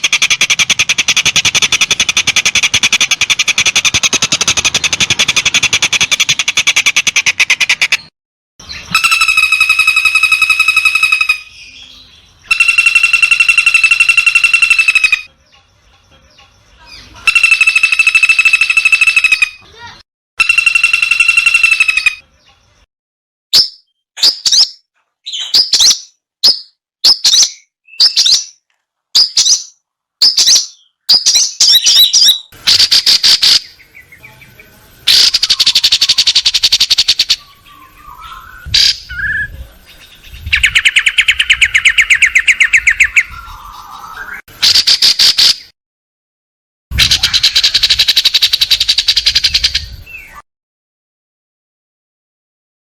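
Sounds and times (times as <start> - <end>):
bird chirps: 0.0 - 22.9, 23.6 - 28.6, 29.2 - 45.7, 47.0 - 50.4
bird rattling trills: 12.5 - 15.3, 17.3 - 19.5, 35.1 - 37.5.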